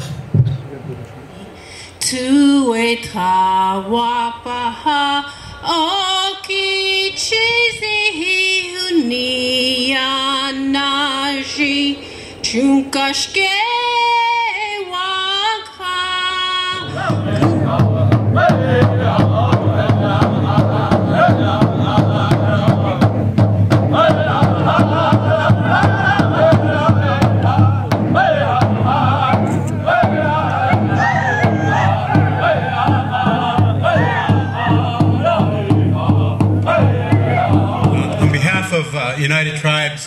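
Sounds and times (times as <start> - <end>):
group of singers: 16.7 - 38.5
drum steady beat: 16.8 - 39.0.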